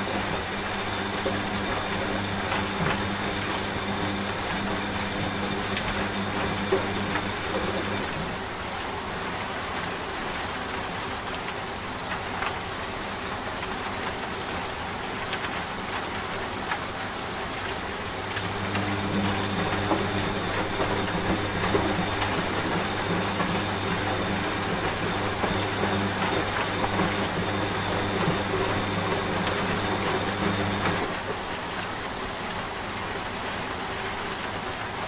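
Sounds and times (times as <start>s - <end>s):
steady rain: 0.0s - 35.0s
washing machine hum: 0.0s - 35.0s.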